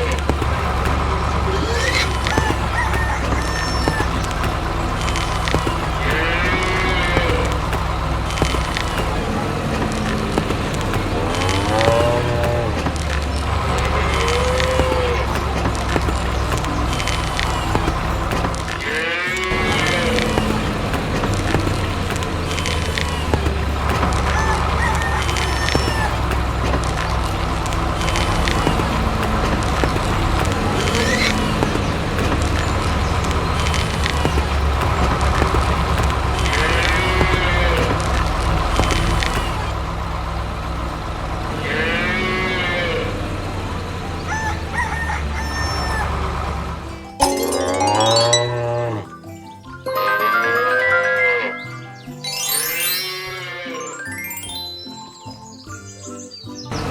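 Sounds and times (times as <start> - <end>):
chicken clucking: 0.0 - 39.7
tractor engine humming: 0.0 - 55.2, 56.6 - 56.9
cow mooing: 6.0 - 7.6, 11.1 - 12.9, 41.5 - 43.2, 48.1 - 49.2.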